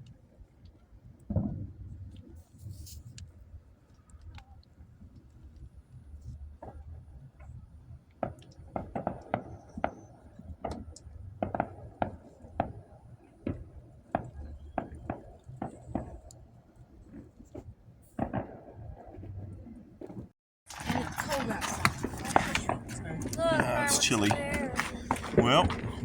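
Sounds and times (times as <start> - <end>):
fireworks popping and cracking: 17.1 - 26.0.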